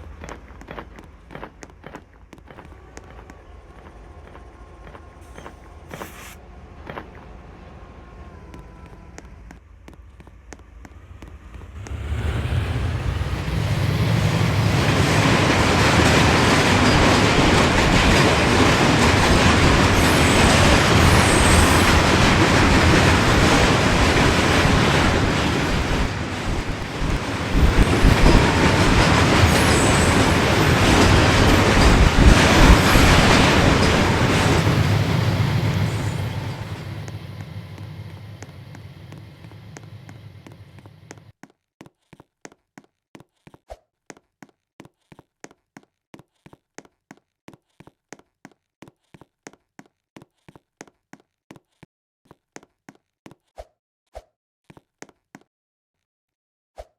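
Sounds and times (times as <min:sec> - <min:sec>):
wheel squeals: 0:01.2 - 0:07.3, 0:16.0 - 0:22.4, 0:25.6 - 0:41.3
freight train wheels clattering: 0:09.0 - 0:41.3.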